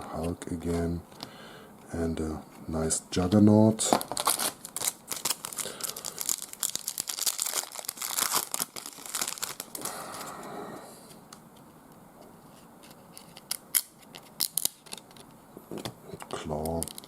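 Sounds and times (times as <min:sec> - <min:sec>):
wrapper crinkling and tearing: 0:03.9 - 0:10.3, 0:13.3 - 0:15.2, 0:16.3 - 0:17.0.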